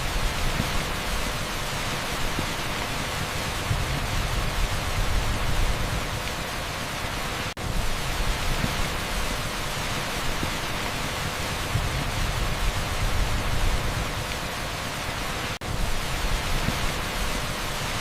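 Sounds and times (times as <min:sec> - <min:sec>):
torrential rain on a street: 0:00.0 - 0:18.0.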